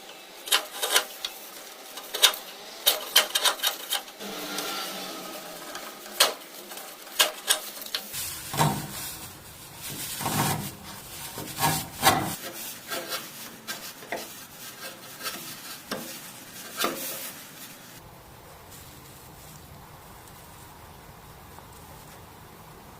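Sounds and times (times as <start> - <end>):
scraping and rasping on wood: 0.4 - 17.8.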